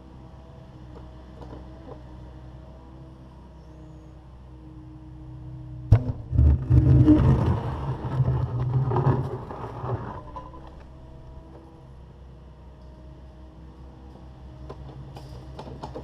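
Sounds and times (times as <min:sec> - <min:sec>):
concrete crunching and scraping: 0:05.9 - 0:10.9.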